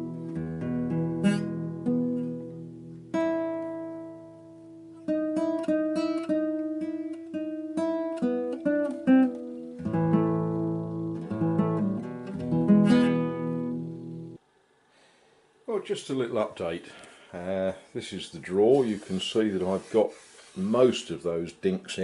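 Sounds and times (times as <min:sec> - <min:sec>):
acoustic guitar playing: 0:00.0 - 0:14.4.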